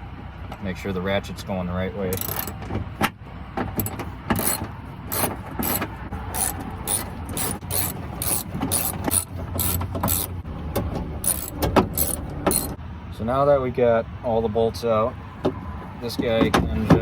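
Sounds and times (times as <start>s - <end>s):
ratchet wrench clicking: 2.1s - 2.5s, 3.8s - 10.4s, 11.2s - 12.8s.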